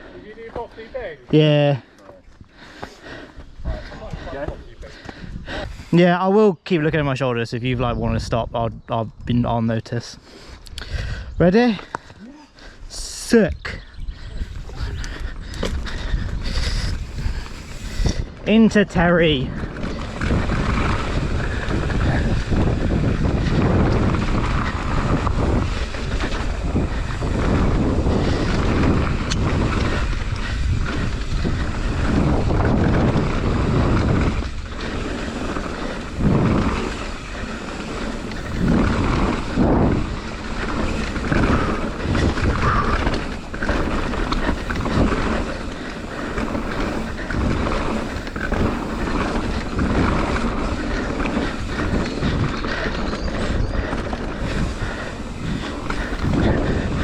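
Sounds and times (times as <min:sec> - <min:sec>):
rumble of bike tyres: 0:00.0 - 0:57.0
wind buffeting microphone: 0:00.0 - 0:57.0
bike clattering over bumps: 0:14.6 - 0:57.0.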